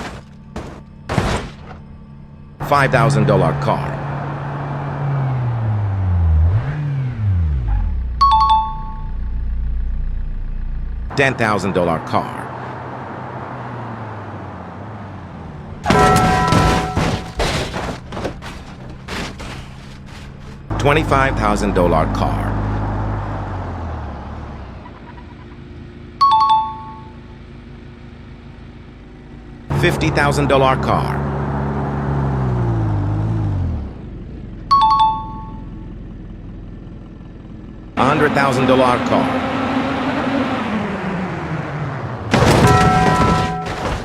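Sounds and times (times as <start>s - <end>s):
car engine revving and idling: 2.0s - 8.3s, 9.0s - 26.2s, 27.2s - 34.8s, 35.7s - 44.0s
two-note ding-dong chime: 8.2s - 9.2s, 34.7s - 35.7s.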